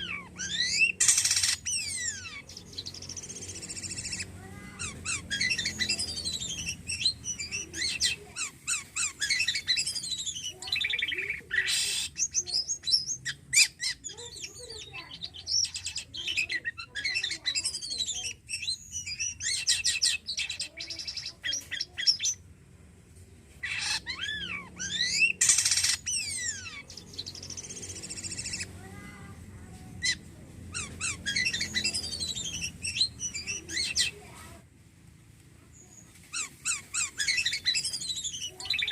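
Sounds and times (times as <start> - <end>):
bird singing varied chirps: 0.0 - 22.4, 23.6 - 29.0, 30.0 - 34.4, 35.8 - 38.9.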